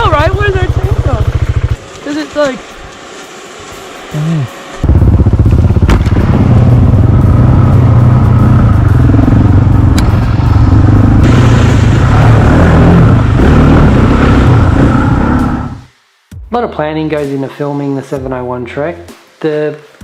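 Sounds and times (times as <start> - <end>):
motorcycle engine running: 0.0 - 15.9.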